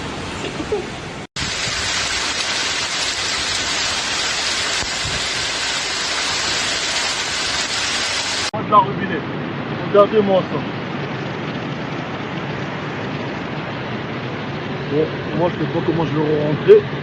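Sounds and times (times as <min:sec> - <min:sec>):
torrential rain pouring: 0:01.0 - 0:08.5.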